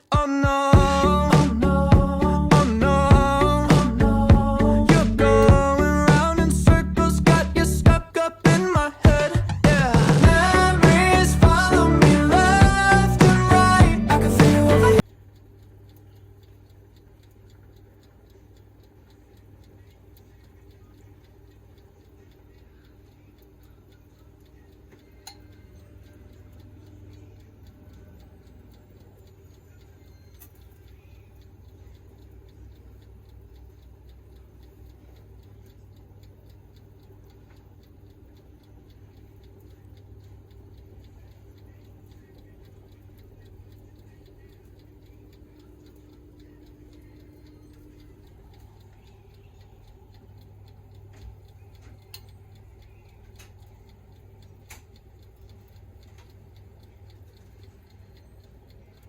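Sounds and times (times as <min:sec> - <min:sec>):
steady low hum: 0:00.0 - 0:59.0
rapid ticking and crackling: 0:00.5 - 0:59.0.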